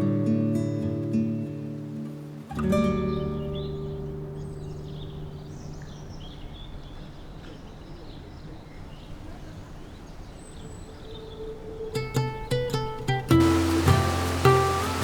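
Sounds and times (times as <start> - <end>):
acoustic guitar chord: 0.0 - 5.9, 12.8 - 15.0
low outdoor background hum: 0.6 - 15.0
small birds chirping: 2.2 - 15.0.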